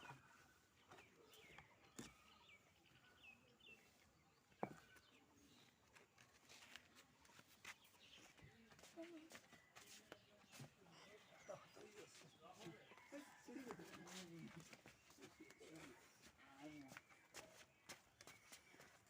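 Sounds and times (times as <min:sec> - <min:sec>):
faint bird chirps: 0:00.0 - 0:13.4.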